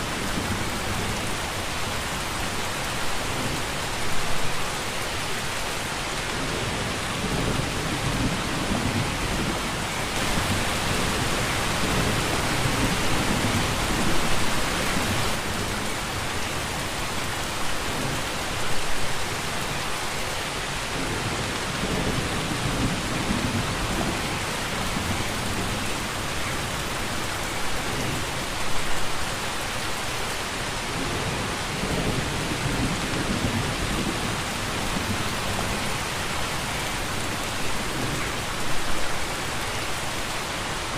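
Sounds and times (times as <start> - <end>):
heavy rain falling: 0.0 - 40.9
distant thunder rumbling: 6.5 - 15.6.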